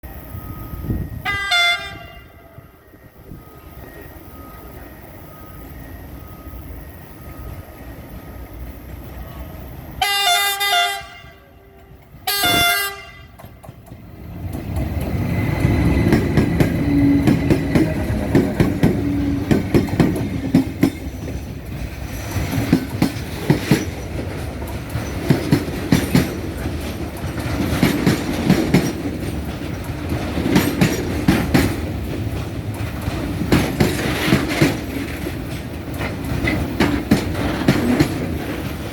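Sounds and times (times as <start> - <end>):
train rumble: 0.0 - 38.9
train horn blasts: 1.2 - 2.8, 10.0 - 13.6
train wheels clacking: 12.0 - 38.9.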